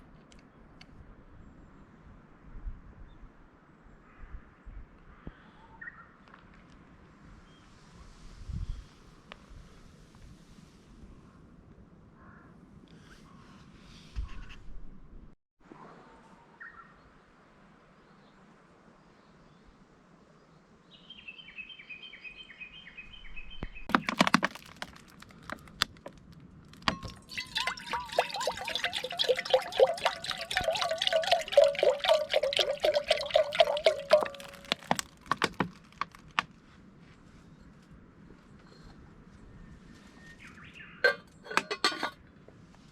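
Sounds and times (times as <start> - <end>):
drink glugging from bottle: 26.7 - 36.4
small glass clinks: 26.8 - 35.0, 41.0 - 42.2.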